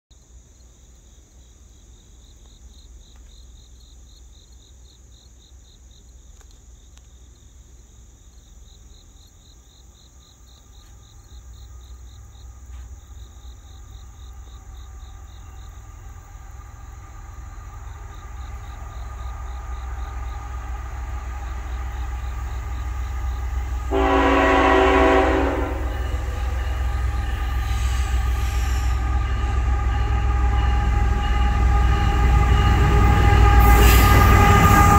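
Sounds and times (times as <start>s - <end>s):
diesel locomotive engine rumble: 9.8s - 34.9s
locomotive horn blast: 23.8s - 34.9s.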